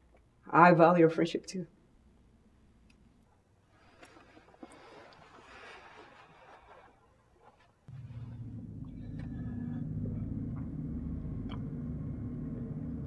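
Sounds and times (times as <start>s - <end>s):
low rumbling drone: 7.9s - 13.0s.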